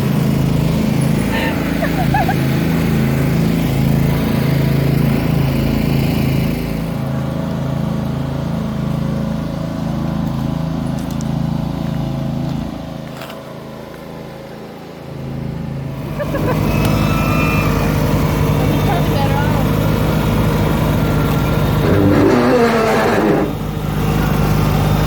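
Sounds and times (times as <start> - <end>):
riding lawnmower engine running: 0.0 - 25.0.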